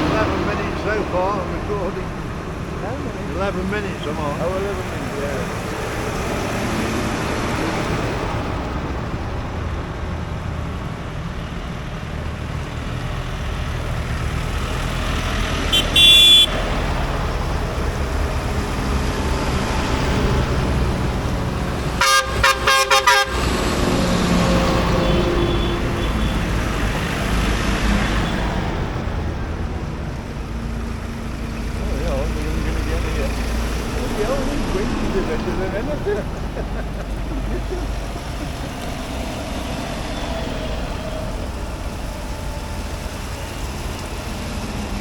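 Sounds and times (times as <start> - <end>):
tractor engines running: 0.0 - 45.0
horn toots: 15.4 - 17.1, 21.8 - 27.4.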